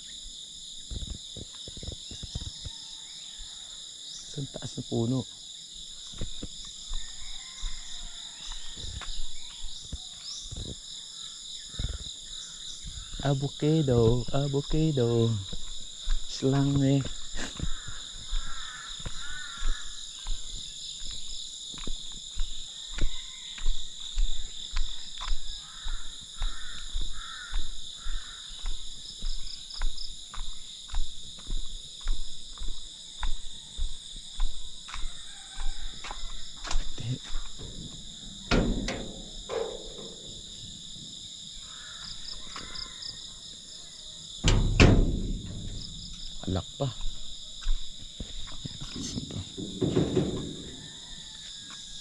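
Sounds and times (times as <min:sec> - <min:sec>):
insects chirping: 0:00.0 - 0:52.0
footsteps thumping: 0:06.0 - 0:07.1, 0:14.0 - 0:41.3, 0:44.4 - 0:51.8
louder knocks: 0:37.6 - 0:40.7, 0:44.4 - 0:46.5, 0:49.4 - 0:50.8.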